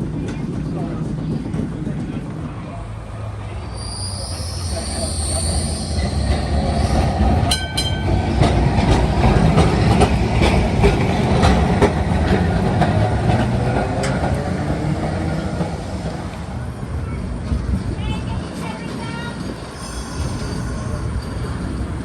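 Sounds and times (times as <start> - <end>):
tram rumbling on rails: 0.0 - 22.0
high wheel squeal: 3.7 - 7.1, 19.4 - 22.0
wheels clicking over rail joints: 7.2 - 16.8.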